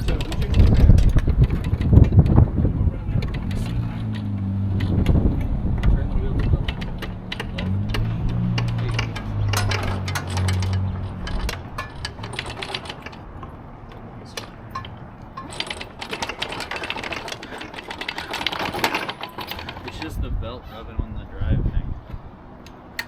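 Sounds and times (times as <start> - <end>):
low engine hum: 0.0 - 16.4
metallic clicking and rattling: 0.0 - 20.2.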